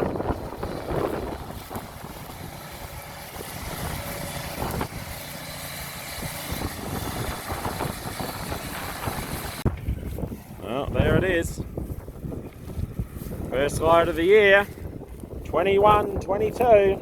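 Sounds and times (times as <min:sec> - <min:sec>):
heavy vehicle engine running: 0:00.0 - 0:10.9.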